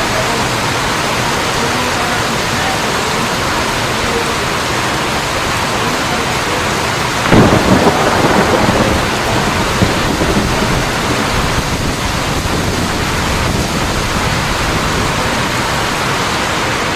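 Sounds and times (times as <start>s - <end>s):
heavy rainfall: 0.0s - 16.9s
thunder clap rumbling: 7.2s - 15.7s.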